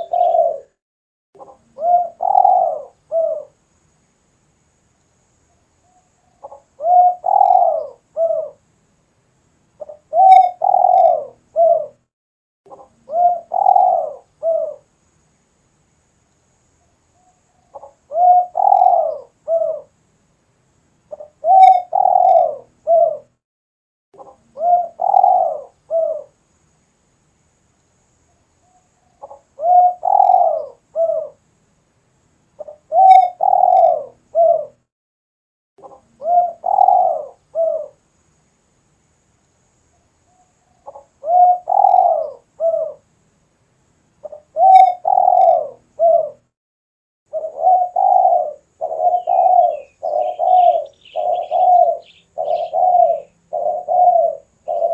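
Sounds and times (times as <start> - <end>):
dove cooing: 0.0 - 0.8, 1.4 - 3.6, 6.4 - 8.6, 9.8 - 12.0, 12.7 - 14.8, 17.7 - 19.9, 21.1 - 23.4, 24.2 - 26.4, 29.2 - 31.4, 32.6 - 34.8, 35.8 - 38.0, 40.8 - 43.0, 44.2 - 46.4, 47.3 - 54.9.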